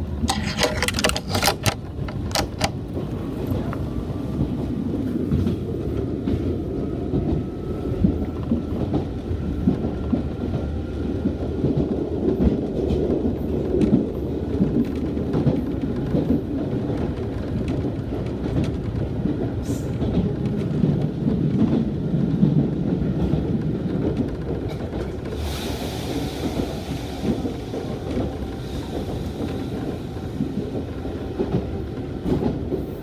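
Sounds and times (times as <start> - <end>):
train wheels rumbling on rail: 0.0 - 33.0
quick clicks: 0.3 - 2.8.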